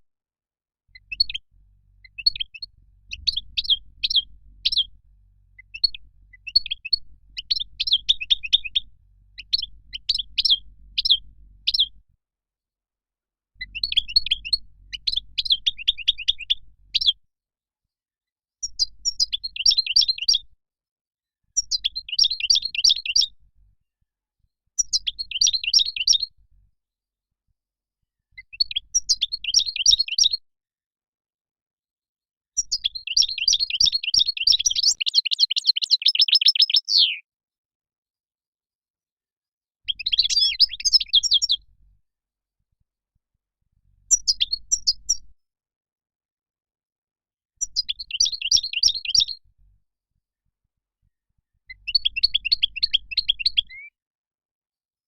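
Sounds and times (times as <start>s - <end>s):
goldfinch twittering chirps and trills: 9.4s - 11.9s, 32.6s - 37.2s, 39.9s - 41.6s.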